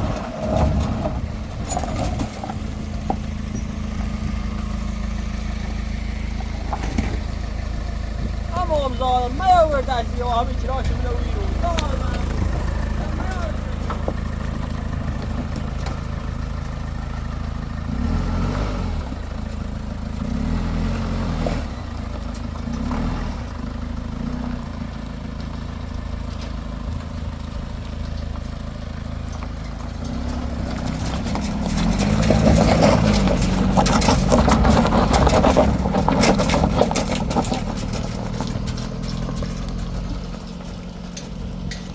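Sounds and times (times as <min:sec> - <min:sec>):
vehicle engine running: 0:00.0 - 0:41.9.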